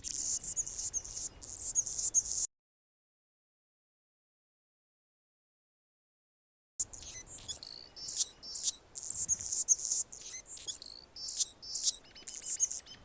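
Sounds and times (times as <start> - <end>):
hummingbird singing: 0.0 - 2.5, 6.8 - 13.0.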